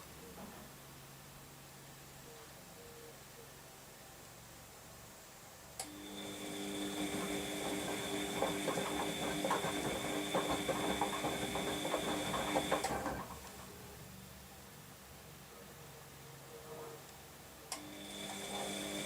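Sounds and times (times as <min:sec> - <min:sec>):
washing machine motor whine: 0:05.8 - 0:14.0, 0:17.7 - 0:19.0
washing machine motor click: 0:06.6 - 0:13.6
tumbling load clicks and knocks: 0:07.0 - 0:13.5.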